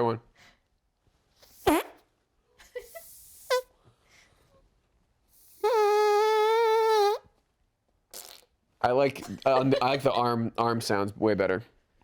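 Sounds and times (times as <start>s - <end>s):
person making fart noise: 1.5s - 2.1s, 5.4s - 7.3s, 8.1s - 8.6s.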